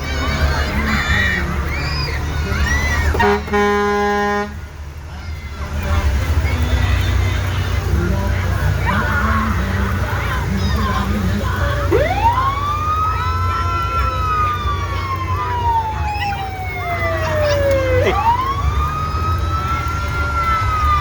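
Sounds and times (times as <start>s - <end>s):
fire engine siren: 0.0s - 4.7s, 8.8s - 21.0s
truck engine rumble: 0.0s - 21.0s.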